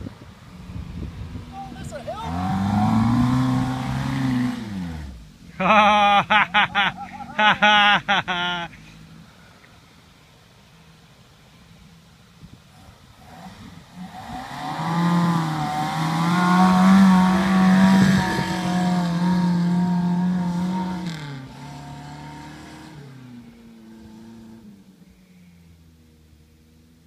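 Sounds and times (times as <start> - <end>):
vehicle engine revving hard: 2.1 - 9.1, 13.2 - 24.8.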